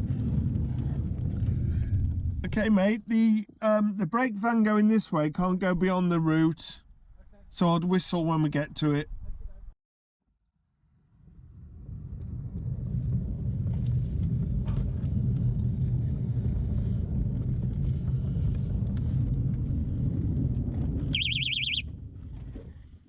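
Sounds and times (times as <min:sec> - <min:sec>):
short trilling whistle: 0:21.2 - 0:21.8.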